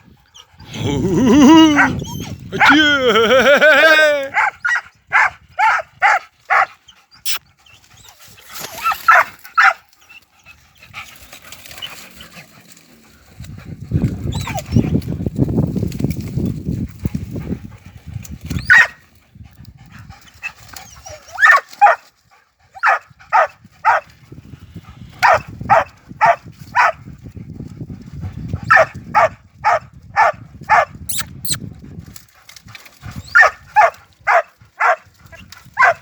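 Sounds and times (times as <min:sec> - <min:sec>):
dogs barking: 0:04.3 - 0:07.4, 0:08.8 - 0:09.8, 0:18.7 - 0:19.0, 0:21.4 - 0:22.0, 0:22.8 - 0:24.1, 0:25.2 - 0:27.0, 0:28.6 - 0:30.9, 0:33.3 - 0:36.0.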